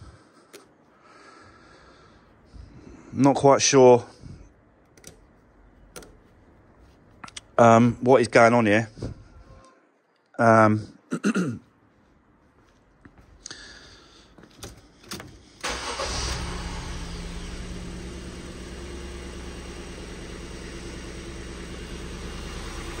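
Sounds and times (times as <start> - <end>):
starter clicks: 4.8 - 6.2
car engine starting and idling: 15.6 - 23.0.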